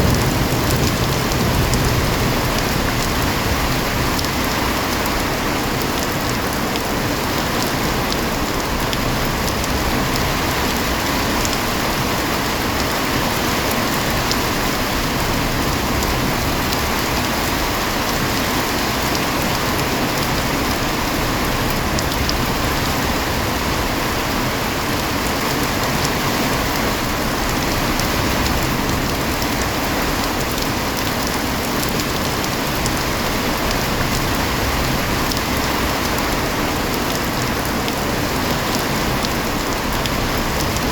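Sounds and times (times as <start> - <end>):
heavy rain falling: 0.0 - 40.9
raindrop ticks: 19.0 - 22.8.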